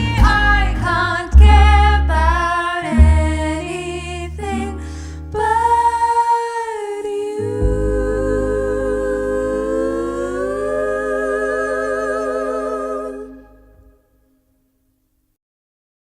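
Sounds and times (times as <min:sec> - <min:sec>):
backing track with deep bass: 0:00.0 - 0:04.4
women singing pop: 0:00.0 - 0:13.7.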